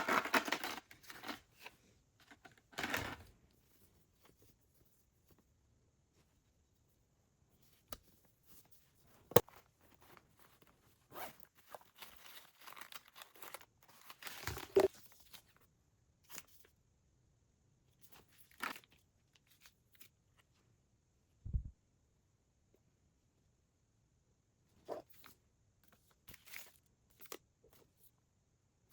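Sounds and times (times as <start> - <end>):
rustling and crinkling: 0.0 - 6.9, 7.6 - 15.7.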